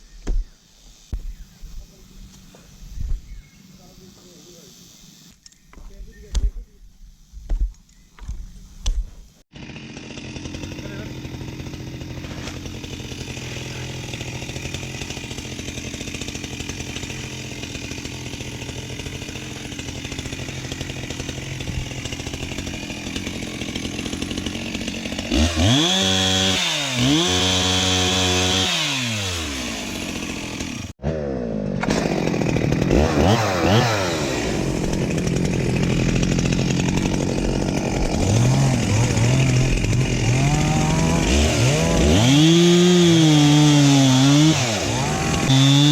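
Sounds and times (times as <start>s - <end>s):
chainsaw revving: 9.5s - 45.9s.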